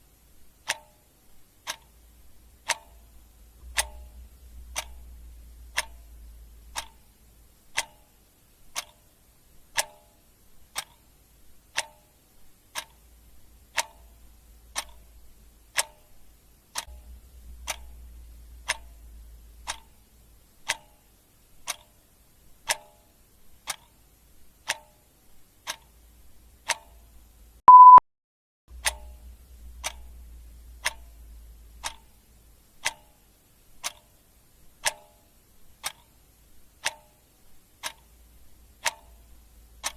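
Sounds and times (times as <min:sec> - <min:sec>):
clock ticking: 0:00.5 - 0:28.0, 0:28.7 - 0:39.9
short loud beep: 0:27.7 - 0:28.0.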